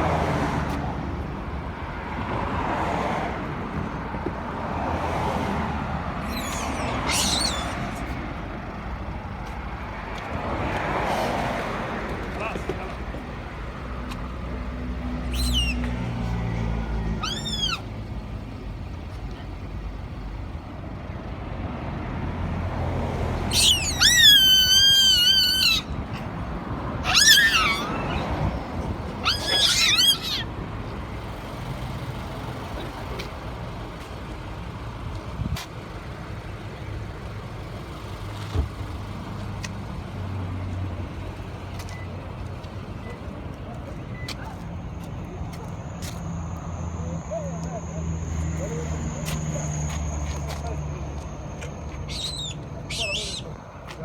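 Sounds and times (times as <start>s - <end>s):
monkeys screaming: 6.2s - 8.1s, 15.2s - 16.1s, 17.1s - 17.9s, 23.4s - 26.3s, 26.9s - 30.6s, 51.9s - 53.6s.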